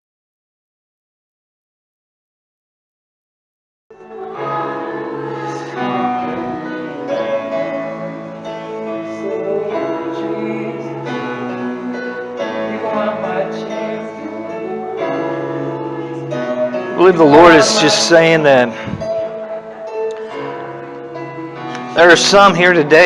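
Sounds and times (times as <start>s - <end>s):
person singing: 4.0s - 23.0s
worship music with acoustic guitar: 4.0s - 23.0s.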